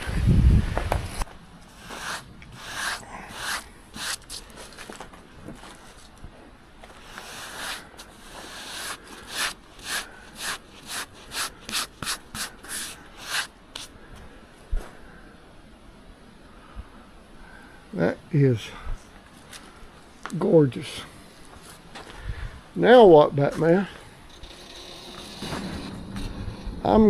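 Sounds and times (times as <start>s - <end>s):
brush rubbing on wood: 0.9s - 5.0s, 6.9s - 13.9s.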